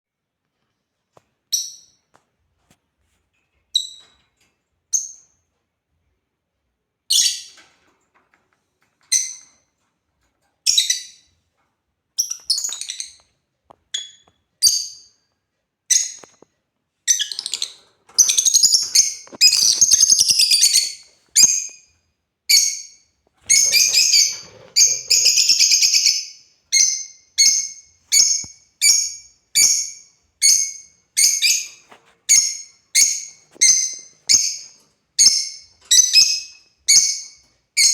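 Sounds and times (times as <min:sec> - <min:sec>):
lovebirds chirping: 0:17.1 - 0:21.8, 0:22.5 - 0:37.9.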